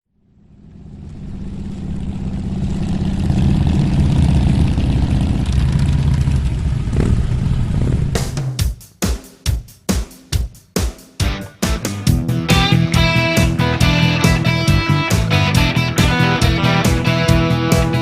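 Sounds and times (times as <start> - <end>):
motorcycle engine running: 0.2 - 8.7, 12.1 - 18.0
music drum beats: 8.1 - 18.0.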